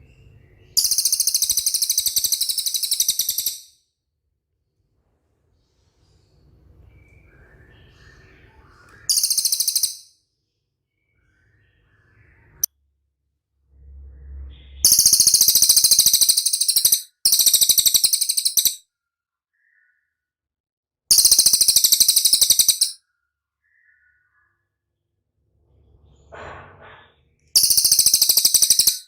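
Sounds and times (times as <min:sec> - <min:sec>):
bird high-pitched chirps: 0:00.7 - 0:03.8, 0:07.1 - 0:10.1, 0:14.8 - 0:18.8, 0:21.1 - 0:23.0, 0:27.6 - 0:29.0.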